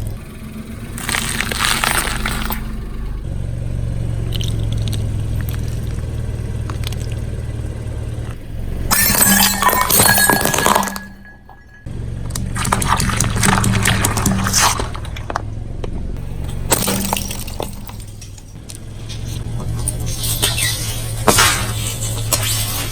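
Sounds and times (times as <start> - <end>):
car engine running low: 0.0 - 22.9
tyre crushing brittle objects: 0.9 - 2.9, 4.2 - 7.4, 12.4 - 15.5, 16.2 - 22.9.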